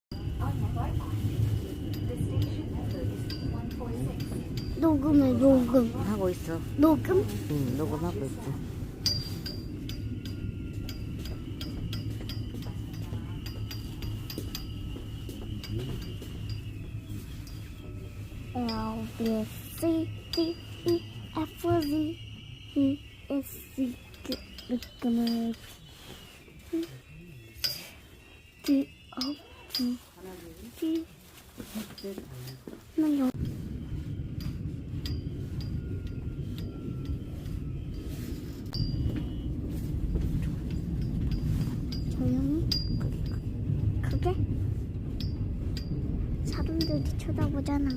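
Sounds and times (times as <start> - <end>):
subway train rumbling: 0.1 - 47.9
thin whine: 0.1 - 47.9
glass marbles clinking: 9.0 - 30.8.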